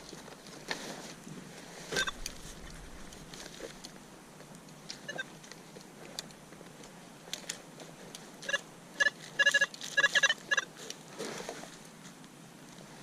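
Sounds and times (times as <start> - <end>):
metal detector beeping: 2.0 - 2.2, 5.1 - 5.3, 8.4 - 10.7.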